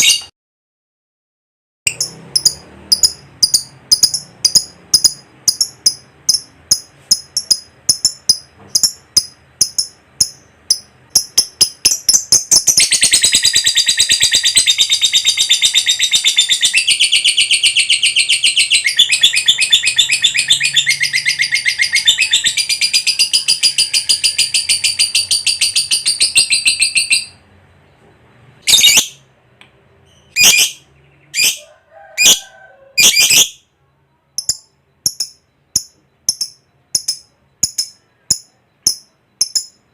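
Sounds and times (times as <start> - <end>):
bird high chirps: 0.0 - 0.3, 1.9 - 39.9
rapid chattering bird trill: 1.9 - 27.4, 34.3 - 39.9.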